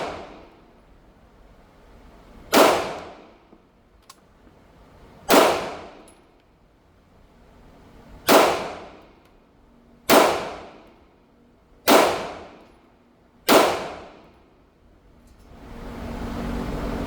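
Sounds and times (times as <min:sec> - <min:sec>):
pistol shots: 0:00.0 - 0:00.5, 0:02.5 - 0:03.4, 0:05.3 - 0:06.1, 0:08.3 - 0:09.1, 0:10.1 - 0:10.9, 0:11.9 - 0:12.7, 0:13.5 - 0:14.3.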